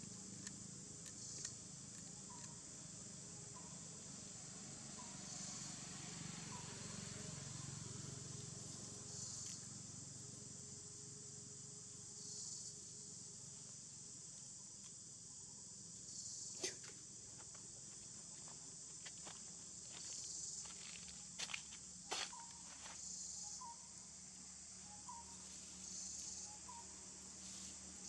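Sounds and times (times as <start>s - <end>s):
high-pitched insect drone: 0.1s - 13.8s, 18.4s - 28.0s.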